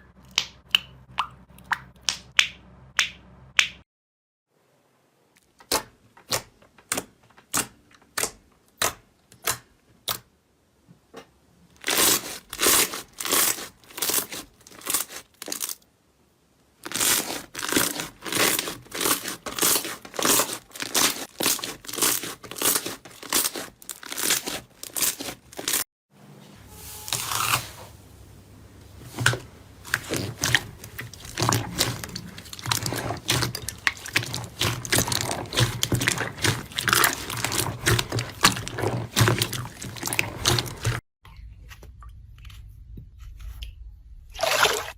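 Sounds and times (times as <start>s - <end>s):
slime popping and crackling: 16.8s - 25.8s, 29.9s - 41.0s.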